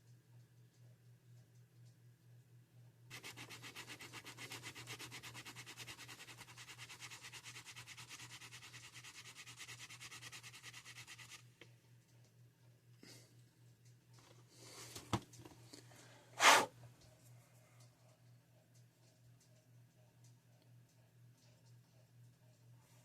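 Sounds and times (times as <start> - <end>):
hand-sanding scraping strokes: 3.1 - 11.4.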